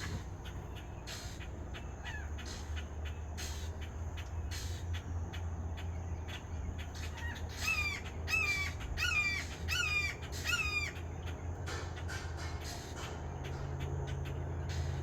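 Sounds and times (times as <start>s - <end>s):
steady low hum: 0.0s - 15.0s
hawk calling: 6.4s - 11.4s.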